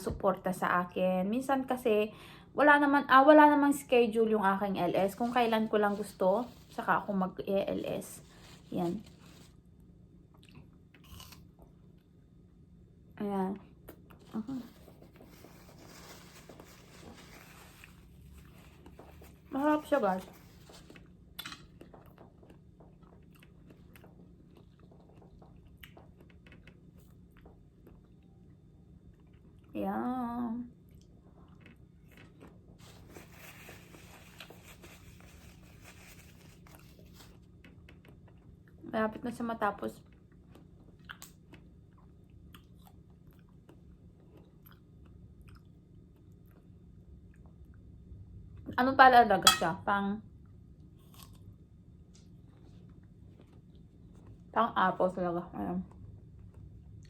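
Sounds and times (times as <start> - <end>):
chewing and crunching apple: 5.0 - 12.4, 13.8 - 29.8, 30.7 - 38.9, 39.9 - 48.6, 50.4 - 54.6, 55.5 - 57.0
chewing crunches: 10.3 - 12.0, 20.8 - 28.3, 40.0 - 46.7, 51.0 - 51.6.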